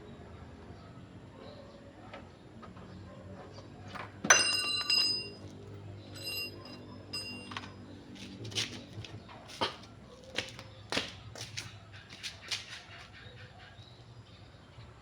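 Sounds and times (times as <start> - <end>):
metal clink ringing: 4.3 - 7.8.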